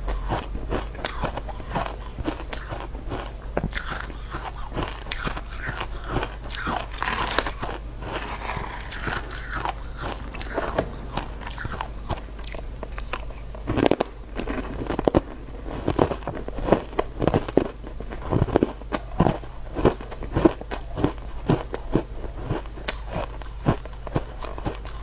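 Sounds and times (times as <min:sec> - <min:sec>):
ice crunching between teeth: 0:03.7 - 0:10.6.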